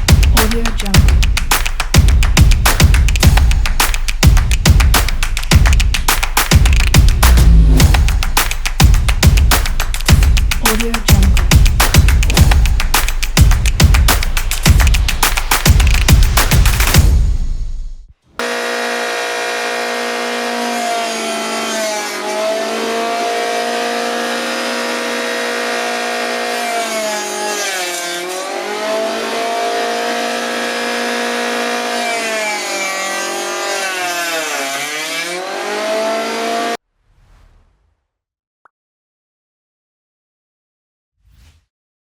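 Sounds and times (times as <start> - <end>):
electric hand planer motor whining: 18.4 - 36.8.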